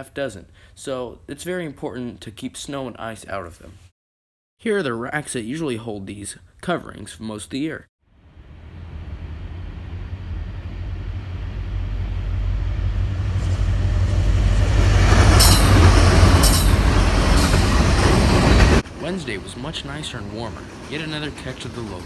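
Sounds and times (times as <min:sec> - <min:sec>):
freight train rumbling: 0:08.3 - 0:22.0
train wheels clacking on rail joint: 0:14.5 - 0:22.0.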